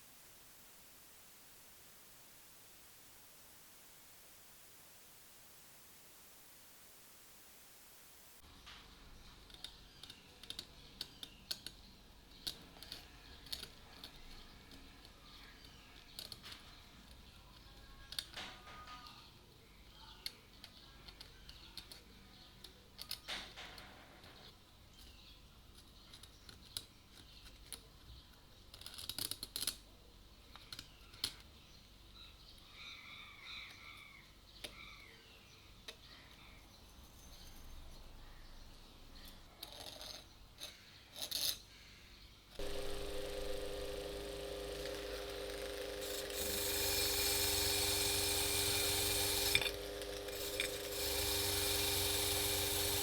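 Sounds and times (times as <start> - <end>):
small parts clicking and tapping: 8.6 - 19.3, 20.2 - 29.9, 30.5 - 31.6, 39.2 - 41.7, 42.5 - 53.0
small electric motor humming: 42.6 - 53.0.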